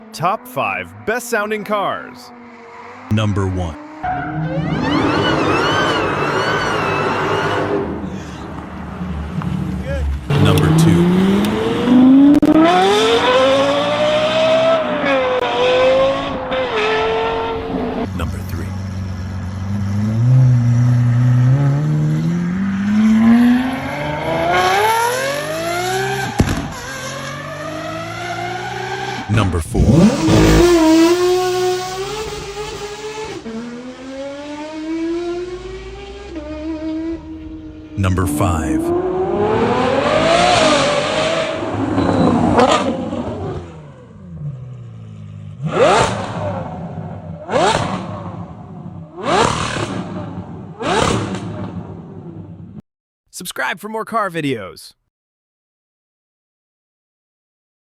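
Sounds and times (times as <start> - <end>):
car engine accelerating hard: 3.7 - 18.1, 18.8 - 44.8.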